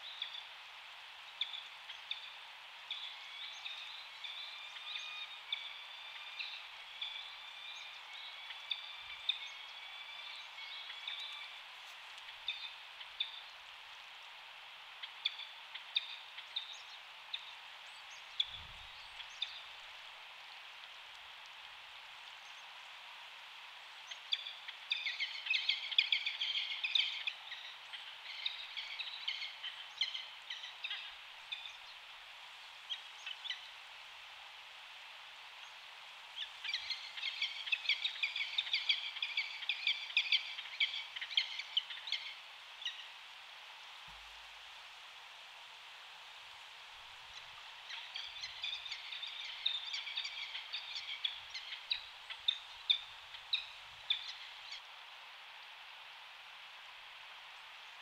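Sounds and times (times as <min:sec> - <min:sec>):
steady outdoor hiss: 0:00.0 - 0:58.0
birds chirping and twittering: 0:01.3 - 0:11.6, 0:24.0 - 0:32.0, 0:36.4 - 0:43.1, 0:47.3 - 0:54.8.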